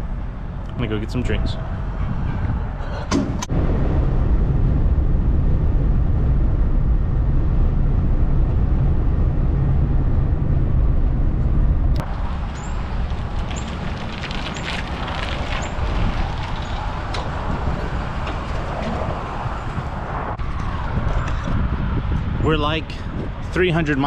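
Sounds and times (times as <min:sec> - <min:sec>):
vehicle road rumble: 0:00.0 - 0:24.0.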